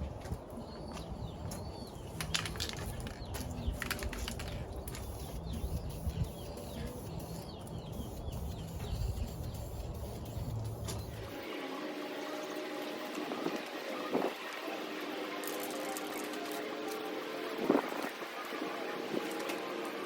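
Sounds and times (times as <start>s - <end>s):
wind rumble on microphone: 0.0s - 6.6s, 8.0s - 10.8s
small birds chirping: 0.1s - 11.4s.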